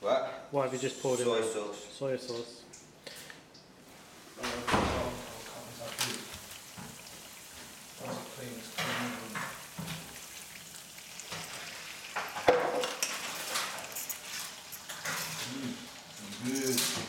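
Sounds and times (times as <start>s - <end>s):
vegetables sizzling in a wok: 5.0s - 17.0s.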